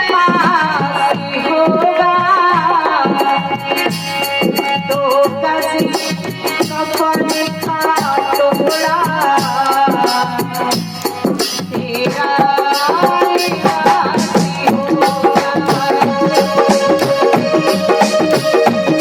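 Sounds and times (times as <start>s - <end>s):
hand drums and rattling percussion: 0.0s - 19.0s
held melody line: 12.8s - 19.0s.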